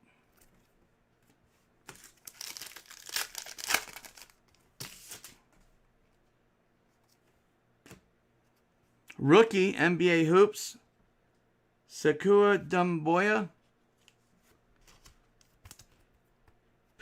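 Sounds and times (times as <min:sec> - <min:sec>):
wrapper tearing and crinkling: 0:01.9 - 0:05.3.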